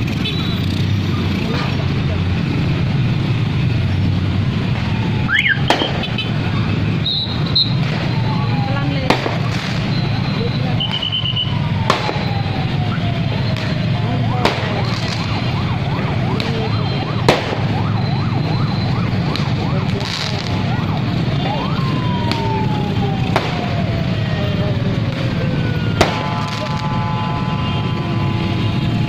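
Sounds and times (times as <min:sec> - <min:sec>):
sharp firework bangs: 0:05.6 - 0:06.3, 0:09.0 - 0:09.9, 0:11.8 - 0:12.4, 0:17.2 - 0:17.8, 0:26.0 - 0:27.1
firework whistles: 0:07.0 - 0:08.5, 0:09.2 - 0:12.5.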